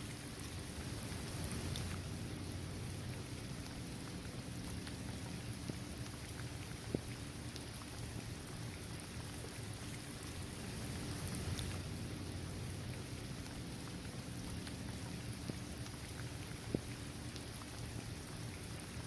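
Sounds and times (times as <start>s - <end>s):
rain falling: 0.0s - 19.0s
raindrop ticks: 1.2s - 2.0s, 3.0s - 8.7s, 11.1s - 11.9s, 12.9s - 19.0s.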